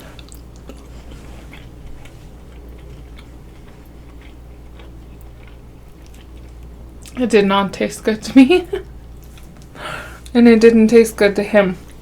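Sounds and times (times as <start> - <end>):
person chewing food: 0.0 - 7.2, 8.8 - 10.3.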